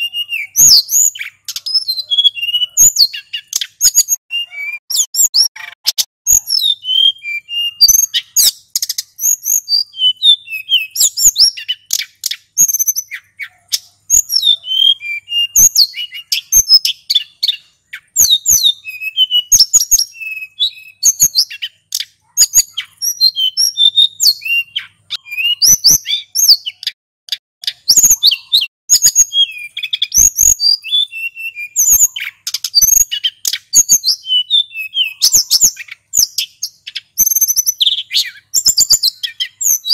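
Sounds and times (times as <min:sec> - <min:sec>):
bird singing high whistled phrases: 0:00.0 - 0:27.0, 0:27.6 - 0:39.9.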